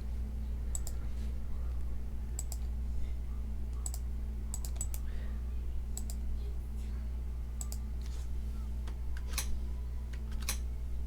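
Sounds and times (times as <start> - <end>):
low electrical hum: 0.0 - 11.0
computer key clicks: 2.4 - 2.7, 3.8 - 5.0, 6.0 - 6.2.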